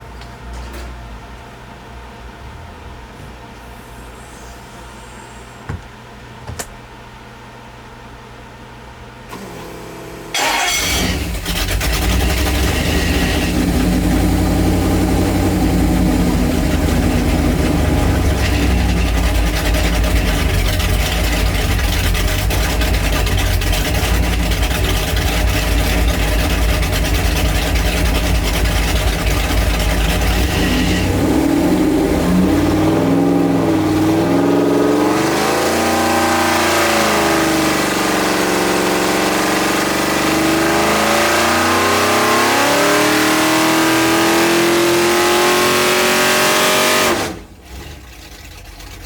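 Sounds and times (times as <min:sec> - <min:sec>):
engine running loudly: 0:10.3 - 0:47.5.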